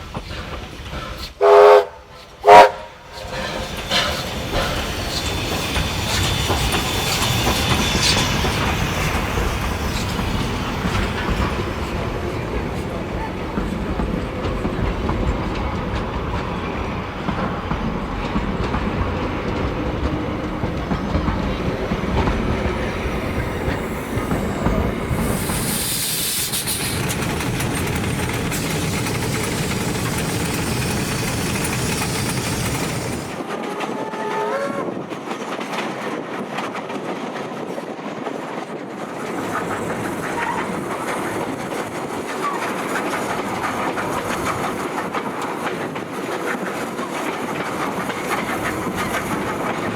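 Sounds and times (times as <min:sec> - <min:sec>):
train wheels clicking over rail joints: 0:00.0 - 0:34.0, 0:34.9 - 0:49.9
train wheel squeal: 0:00.2 - 0:15.7, 0:19.2 - 0:35.5, 0:39.0 - 0:49.9
short hiss: 0:23.2 - 0:29.7.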